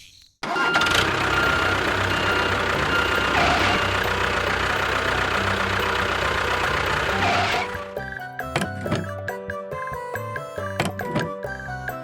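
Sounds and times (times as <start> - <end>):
engine idling with knocking beat: 0.5 - 9.2.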